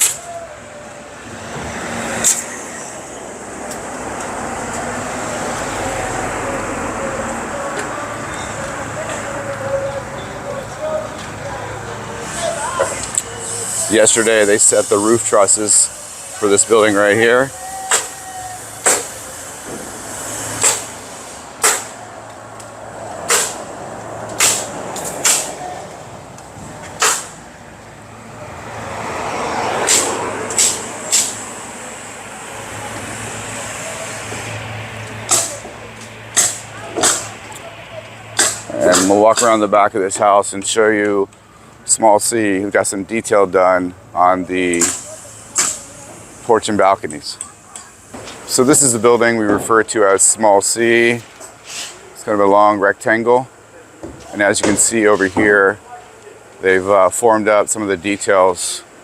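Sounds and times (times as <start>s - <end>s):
road traffic passing: 0.0s - 59.0s
nail guns firing: 21.6s - 22.0s, 23.3s - 23.6s, 24.4s - 25.5s, 27.0s - 27.3s.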